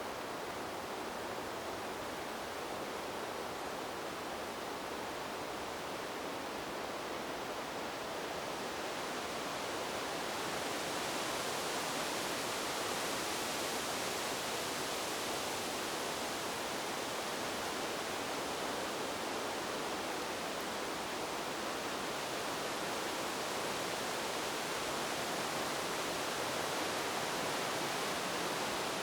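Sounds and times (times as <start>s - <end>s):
wind through bamboo leaves: 0.0s - 29.0s.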